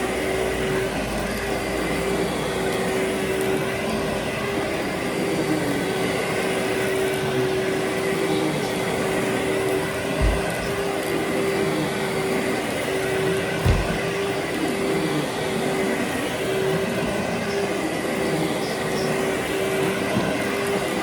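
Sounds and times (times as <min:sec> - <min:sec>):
vacuum cleaner running: 0:00.0 - 0:21.0
short low thump: 0:10.2 - 0:10.7.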